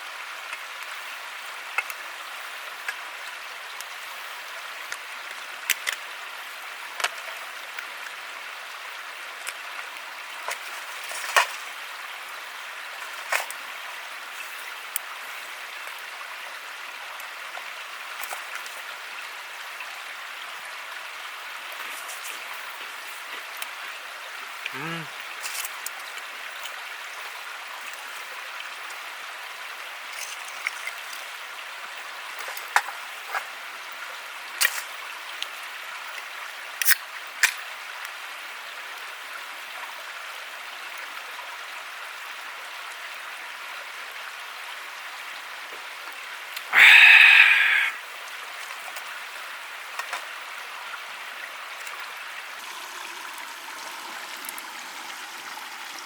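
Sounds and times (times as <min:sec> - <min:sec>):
rushing hiss: 0:46.7 - 0:48.0.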